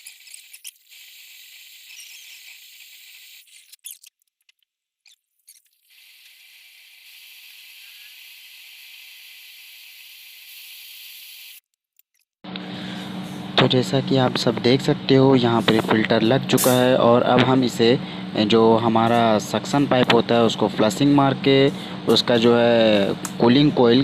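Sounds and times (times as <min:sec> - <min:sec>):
torch flame hissing: 0:00.0 - 0:03.8, 0:05.8 - 0:11.6.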